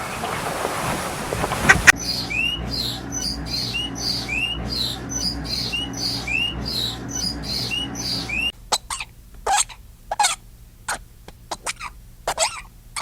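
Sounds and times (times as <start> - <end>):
sharp animal calls: 1.6 - 13.0
bird chirping: 1.7 - 11.0
low hum: 1.8 - 9.4.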